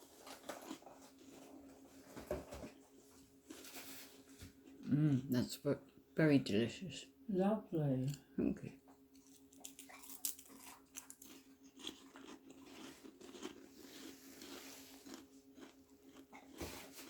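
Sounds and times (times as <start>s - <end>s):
crackers crunching: 0.0s - 2.1s, 3.3s - 4.8s, 9.1s - 17.0s.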